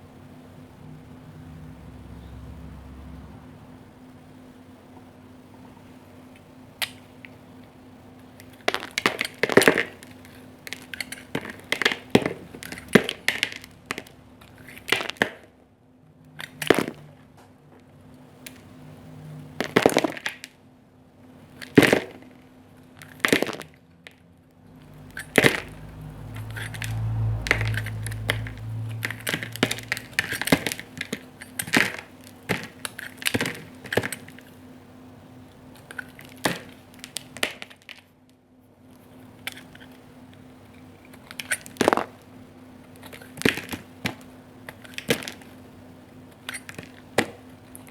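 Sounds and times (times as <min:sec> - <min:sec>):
low hum: 0:00.0 - 0:04.8, 0:24.5 - 0:31.0.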